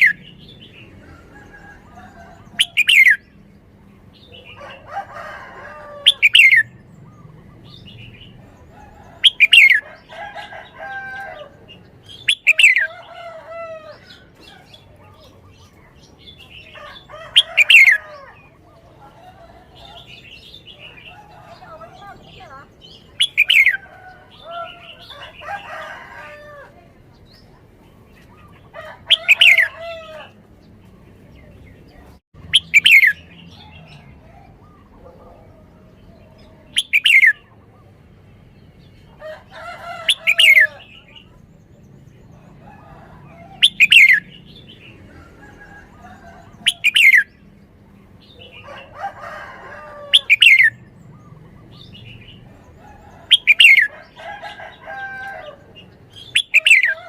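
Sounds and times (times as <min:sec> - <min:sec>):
soft bird warbling and chatter: 0:00.0 - 0:57.0
bulbul singing: 0:11.4 - 0:26.4, 0:31.8 - 0:35.3, 0:36.2 - 0:37.9, 0:49.5 - 0:57.0.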